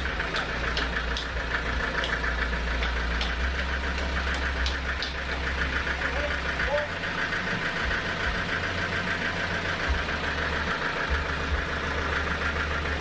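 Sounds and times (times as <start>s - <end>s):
sharp machine ticks: 0.0s - 7.2s
fast machine rattle: 0.0s - 13.0s
sawmill engine hum: 0.0s - 13.0s.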